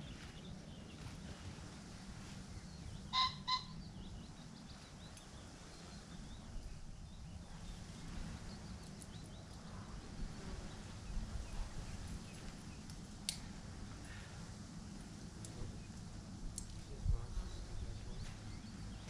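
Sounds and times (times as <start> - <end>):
small birds chirping: 0.0 - 13.4, 15.4 - 19.0
low steady rumble: 0.0 - 19.0
bird calls: 2.4 - 13.0.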